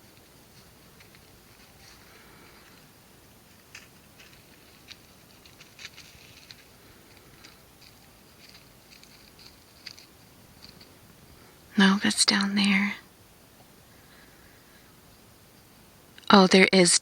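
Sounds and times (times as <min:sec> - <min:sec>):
light clicks and rustles: 0:00.0 - 0:11.0
steady hiss: 0:00.0 - 0:17.0.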